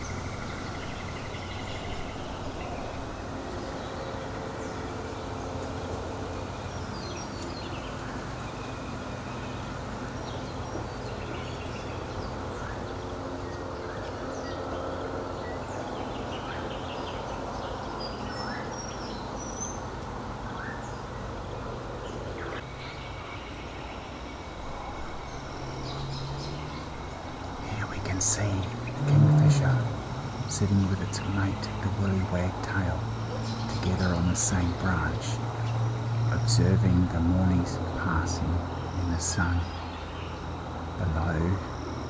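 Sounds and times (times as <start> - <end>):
birds chirping and whistling: 0.0 - 42.0
cars passing: 0.0 - 42.0
distant engines humming: 0.0 - 42.0
motor mowers: 21.7 - 42.0.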